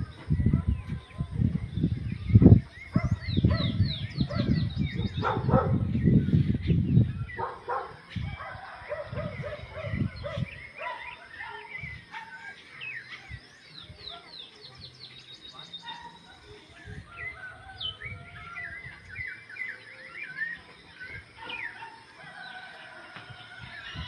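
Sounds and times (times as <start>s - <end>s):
birds singing and chirping: 0.0s - 24.0s.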